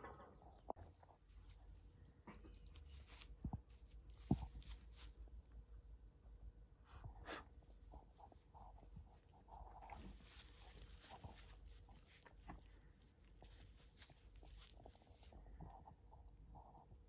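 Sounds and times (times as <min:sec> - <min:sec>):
sheep rustling: 0:00.8 - 0:05.5, 0:07.6 - 0:15.9.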